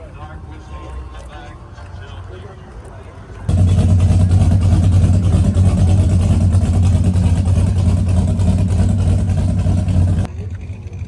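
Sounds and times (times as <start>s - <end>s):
car engine idling: 2.8s - 11.0s.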